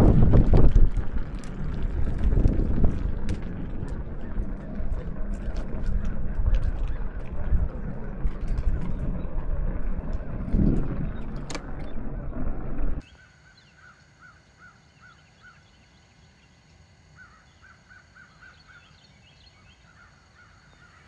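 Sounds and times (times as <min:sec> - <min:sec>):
loud low rumble: 0:00.0 - 0:13.0
bird calling faintly: 0:13.0 - 0:21.0.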